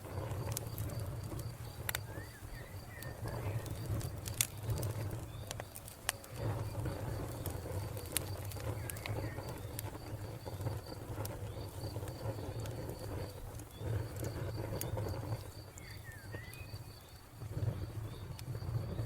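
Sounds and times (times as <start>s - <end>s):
wood fire crackling: 0.0s - 19.0s
cricket chirping: 0.1s - 19.0s
bird chirps: 2.0s - 3.8s, 15.7s - 17.2s.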